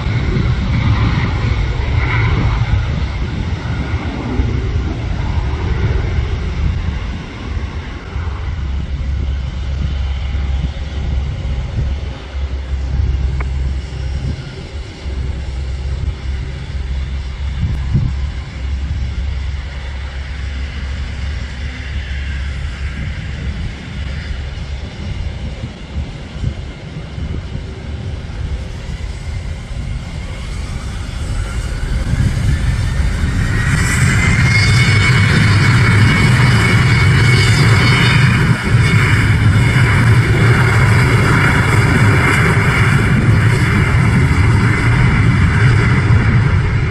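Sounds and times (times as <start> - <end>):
jet engine whine: 0.0 - 46.9
low rumble of jet aircraft: 0.0 - 46.9.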